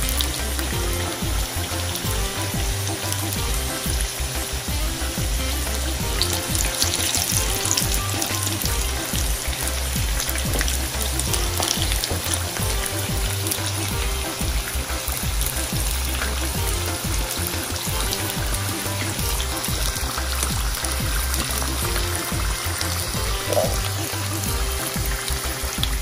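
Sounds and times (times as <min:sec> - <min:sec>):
breadfruit sizzling and crackling in oil: 0:00.0 - 0:26.0.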